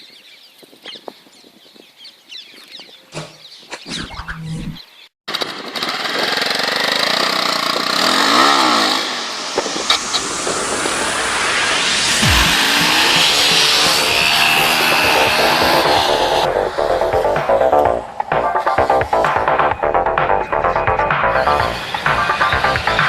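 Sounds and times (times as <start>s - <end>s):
road noise: 4.0s - 23.0s
motorcycle engine running: 5.4s - 23.0s.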